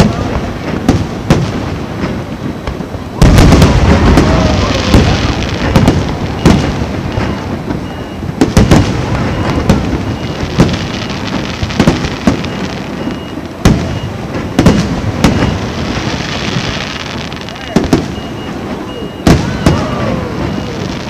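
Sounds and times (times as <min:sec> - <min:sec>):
fireworks bangs: 0:00.0 - 0:21.0
fireworks rumble and crackle: 0:00.0 - 0:21.0.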